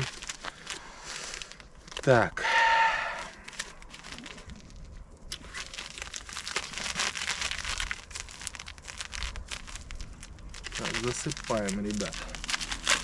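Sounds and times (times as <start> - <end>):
plastic packet crinkling and rustling: 0.0 - 2.3, 3.2 - 13.0
plastic packet tearing: 0.0 - 2.3, 3.2 - 13.0.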